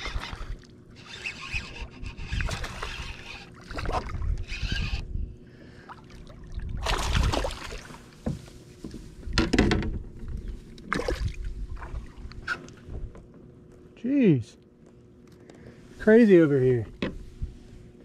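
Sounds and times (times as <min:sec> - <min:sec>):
water splashing around kayak: 0:02.2 - 0:04.5, 0:05.8 - 0:09.4.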